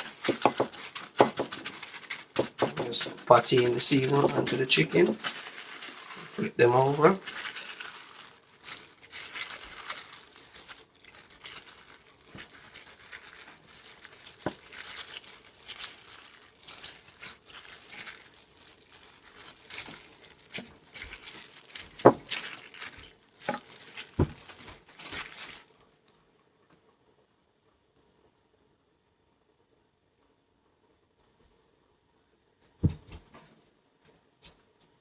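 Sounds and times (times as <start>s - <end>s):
hands patting raw chicken: 0.0s - 25.6s.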